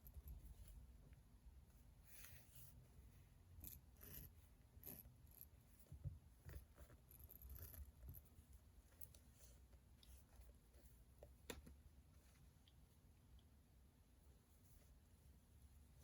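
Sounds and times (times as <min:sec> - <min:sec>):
low room hum: 0:00.0 - 0:16.0
pen scratching strokes: 0:03.6 - 0:05.6.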